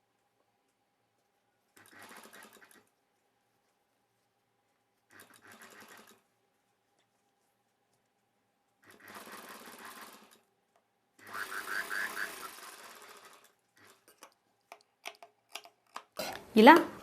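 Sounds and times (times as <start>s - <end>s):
sewing machine stitching: 1.8s - 2.9s, 5.1s - 6.2s, 8.8s - 10.5s, 11.2s - 14.4s.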